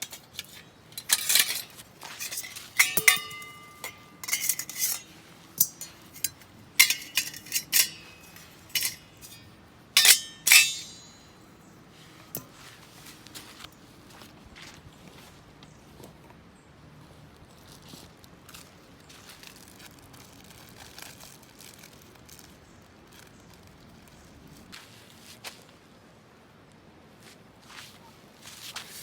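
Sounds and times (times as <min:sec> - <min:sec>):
metal cookware clinking and scraping: 0:00.0 - 0:11.3.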